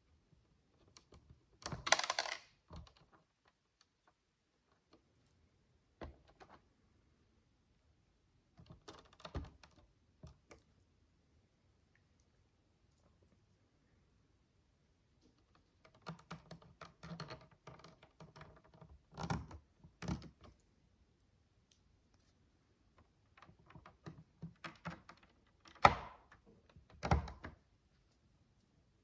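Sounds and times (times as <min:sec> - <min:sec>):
plastic building blocks clicking: 0:01.0 - 0:03.1.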